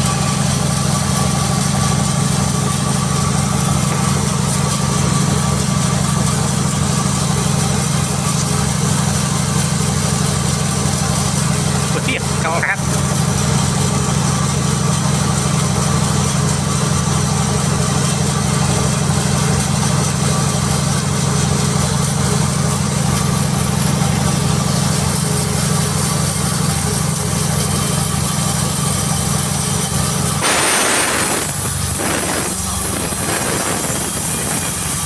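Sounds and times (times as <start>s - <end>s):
sawmill engine running: 0.0s - 9.9s, 21.4s - 35.0s.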